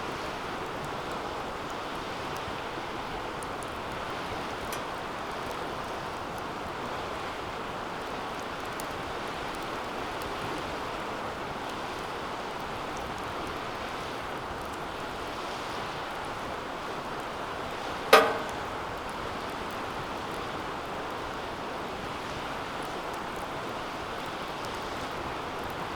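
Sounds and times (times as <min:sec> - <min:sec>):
metal fire pit clanking: 0:03.8 - 0:05.6, 0:18.0 - 0:19.6.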